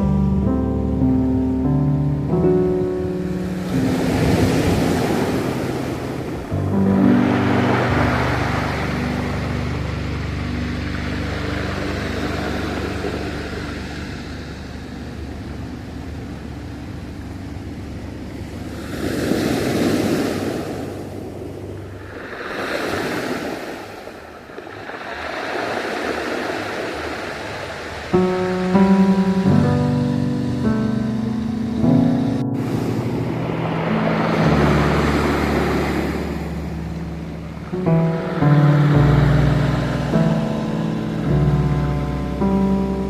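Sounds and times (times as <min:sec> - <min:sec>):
background music: 0:00.0 - 0:15.6, 0:28.2 - 0:43.0
ocean waves washing in: 0:00.0 - 0:43.0.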